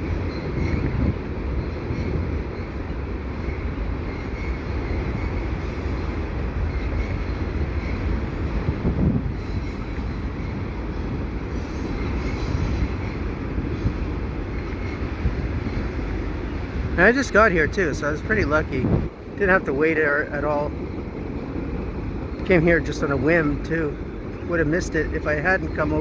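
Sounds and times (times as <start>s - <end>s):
train rumbling over track: 0.0s - 26.0s
faint wheel squeal: 9.4s - 14.4s.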